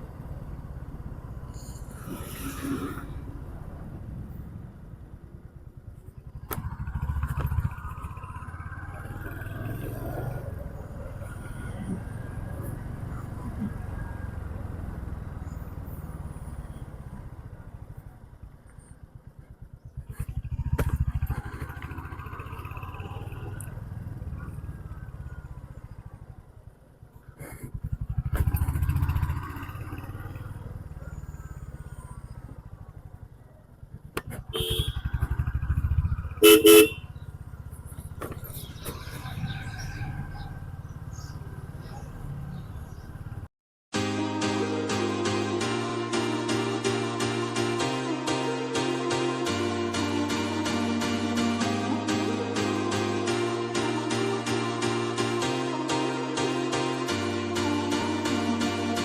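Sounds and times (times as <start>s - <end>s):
motorcycle engine rumble: 0.0s - 43.5s
vehicle horn honking: 34.5s - 35.1s, 36.4s - 37.1s.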